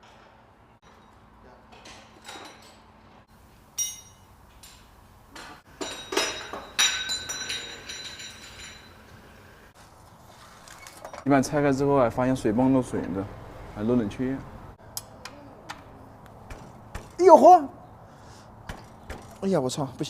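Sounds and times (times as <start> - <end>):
metal hand tools clanking: 3.7 - 9.3.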